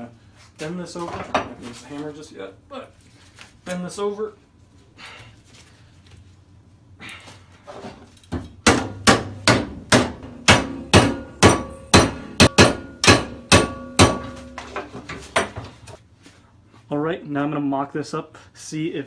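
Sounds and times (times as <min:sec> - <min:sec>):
hammer on sheet metal: 0:08.6 - 0:15.6.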